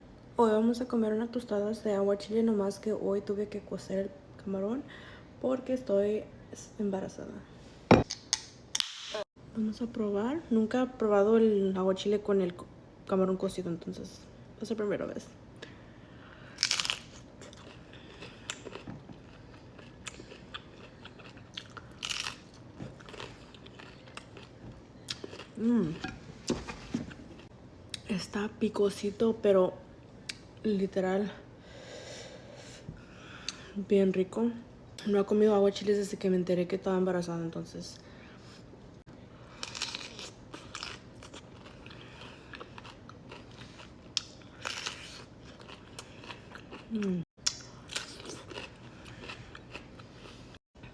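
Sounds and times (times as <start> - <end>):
crunchy bite: 16.6 - 18.9
crackling chewing: 16.6 - 26.1, 39.5 - 50.6.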